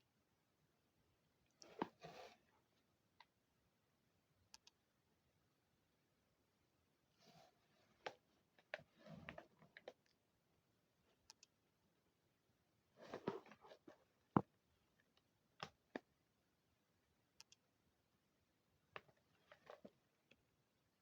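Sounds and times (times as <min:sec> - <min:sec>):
faint clicks: 0:04.5 - 0:04.8, 0:17.4 - 0:17.6.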